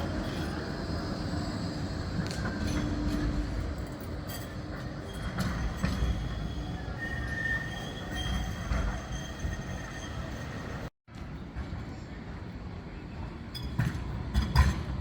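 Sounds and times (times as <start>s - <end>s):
tram rumbling on rails: 0.0s - 15.0s
high wheel squeal: 5.0s - 10.9s.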